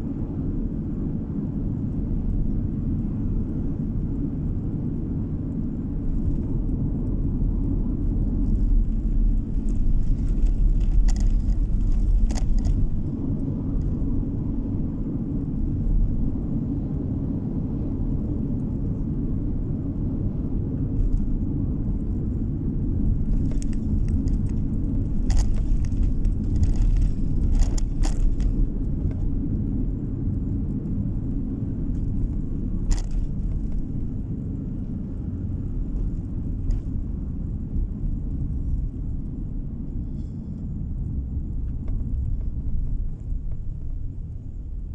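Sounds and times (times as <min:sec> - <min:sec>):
car engine and road rumble: 0:00.0 - 0:44.9
clicks and rattles: 0:09.5 - 0:13.1, 0:23.3 - 0:29.2, 0:32.8 - 0:33.9.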